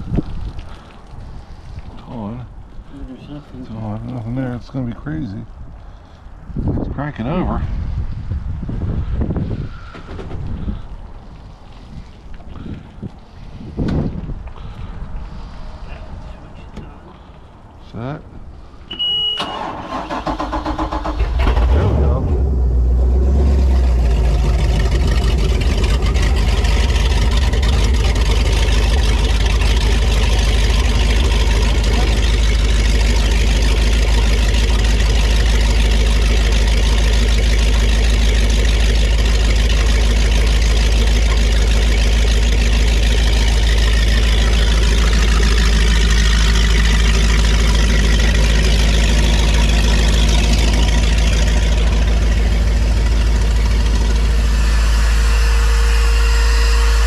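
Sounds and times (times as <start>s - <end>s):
boat engine idling: 22.1s - 57.0s.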